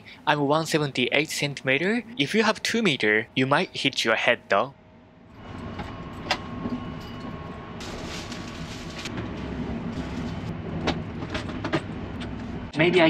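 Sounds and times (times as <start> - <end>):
train rumbling: 5.4 - 13.0.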